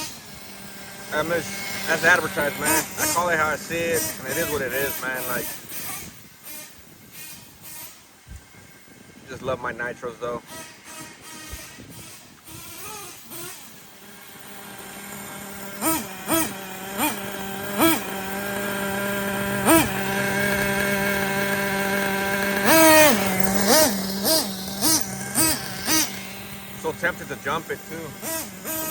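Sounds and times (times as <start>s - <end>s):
small nitro engine revving: 0.0s - 28.9s.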